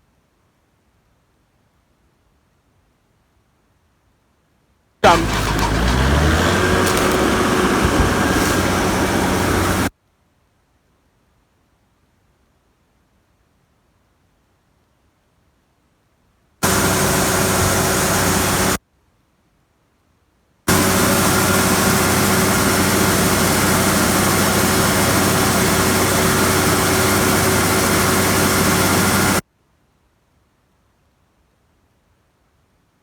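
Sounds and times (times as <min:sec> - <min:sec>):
broad rushing noise: 0:05.0 - 0:09.9, 0:20.7 - 0:29.4
combine harvester engine drone: 0:05.0 - 0:09.9, 0:16.6 - 0:18.8, 0:20.7 - 0:29.4.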